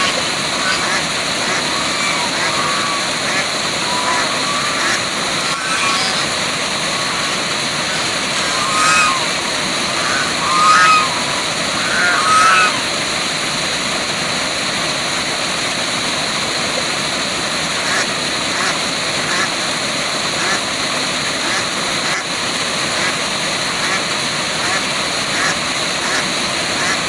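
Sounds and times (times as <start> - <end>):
short bird calls: 0.0 - 13.0
waterfall rushing: 0.0 - 27.0.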